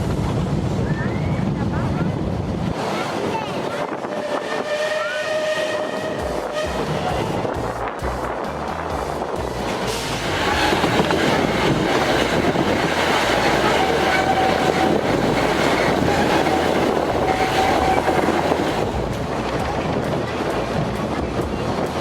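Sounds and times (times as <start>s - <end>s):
train wheels rumbling and clattering: 0.0s - 22.0s
high wheel squeal: 3.9s - 7.4s, 9.9s - 18.9s.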